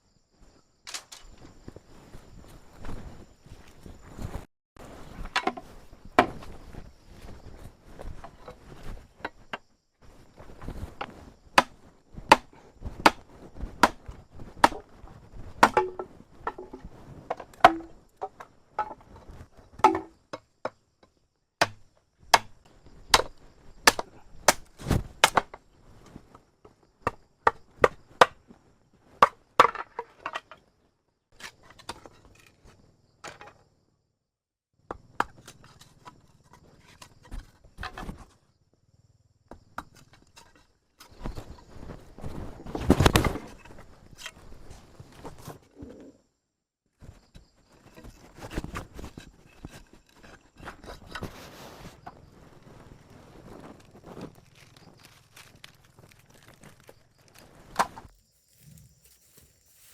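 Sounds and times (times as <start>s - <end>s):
chopping wood: 11.0s - 14.9s, 15.6s - 18.0s, 19.8s - 20.8s, 21.6s - 25.6s, 27.0s - 28.4s.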